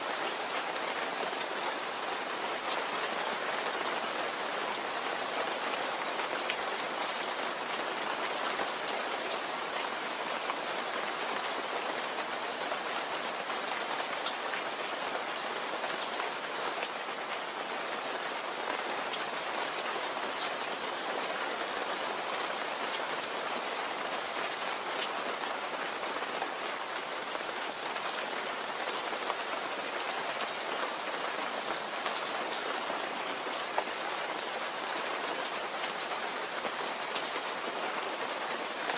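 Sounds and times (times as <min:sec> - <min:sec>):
steady rain hissing: 0:00.0 - 0:38.9.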